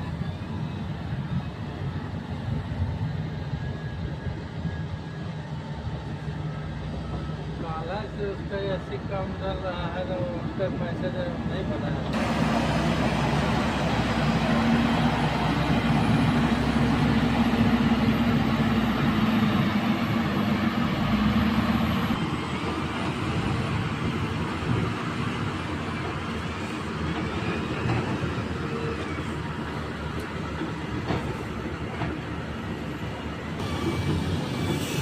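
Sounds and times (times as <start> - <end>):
heavy machinery rumbling: 11.8 - 32.8.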